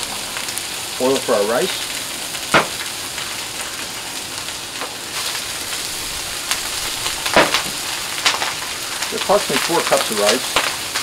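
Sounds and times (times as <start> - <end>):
food sizzling on a griddle: 0.0 - 11.0
sharp knocks: 2.6 - 2.8, 7.4 - 7.8.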